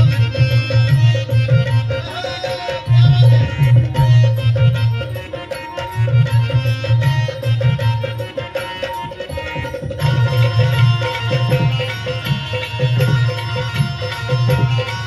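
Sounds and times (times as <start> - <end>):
hand drum fast rhythm: 0.0 - 15.0
sustained melodic accompaniment: 0.0 - 15.0.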